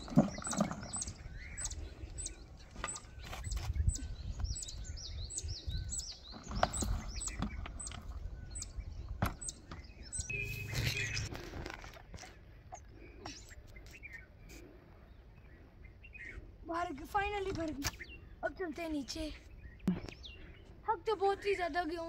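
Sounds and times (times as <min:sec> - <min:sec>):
small birds chirping: 0:00.0 - 0:22.0
spade digging manure: 0:10.3 - 0:12.4.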